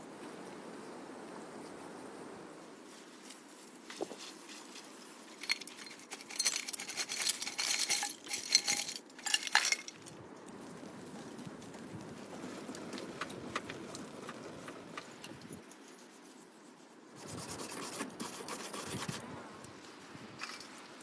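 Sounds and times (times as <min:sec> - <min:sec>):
dishes and utensils clinking: 0:05.4 - 0:09.9.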